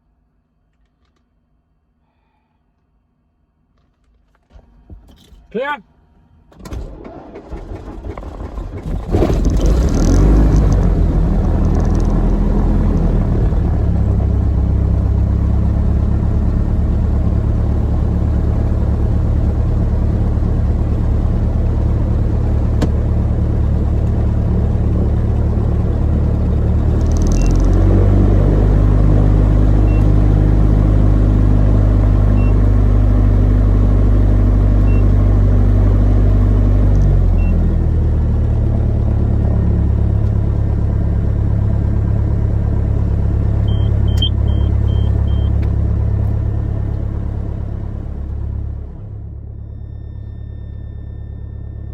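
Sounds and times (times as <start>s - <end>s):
person calling out: 5.5s - 5.9s
engine starter cranking: 6.5s - 10.0s
aircraft engine running: 9.4s - 49.3s.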